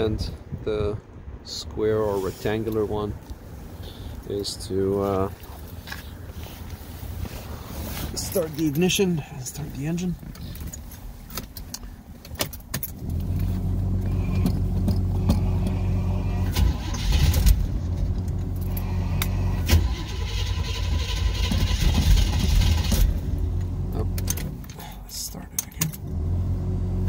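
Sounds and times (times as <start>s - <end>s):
car engine starting and idling: 2.1s - 27.0s
key clicking in ignition: 25.5s - 26.1s.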